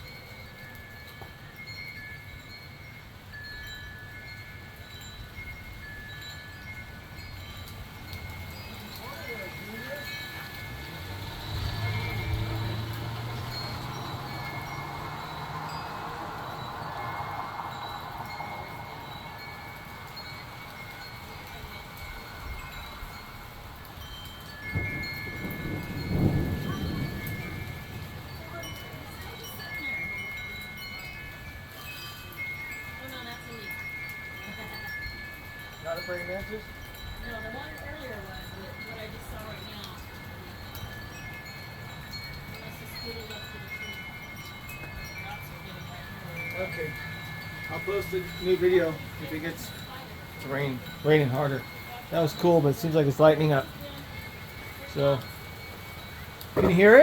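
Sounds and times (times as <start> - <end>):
metal wind chimes ringing: 0.0 - 57.0
steady rain: 0.0 - 57.0
thunder rumbling: 8.0 - 20.4, 24.5 - 30.1.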